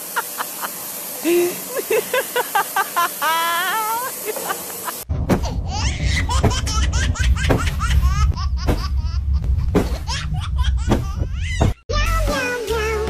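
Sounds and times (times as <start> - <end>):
person giggling: 0.1 - 5.0
music: 11.9 - 13.0.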